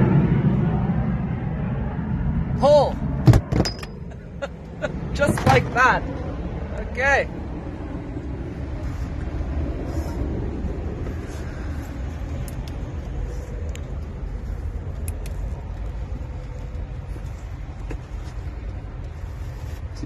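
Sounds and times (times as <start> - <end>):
low rumble: 0.0 - 20.0
faint clicks and rustles: 11.0 - 20.0.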